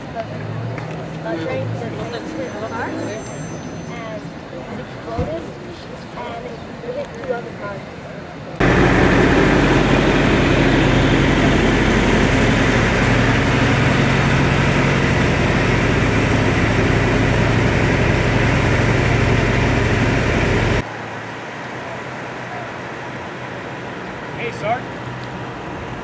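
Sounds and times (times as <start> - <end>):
heavy engine idling: 8.6 - 20.8.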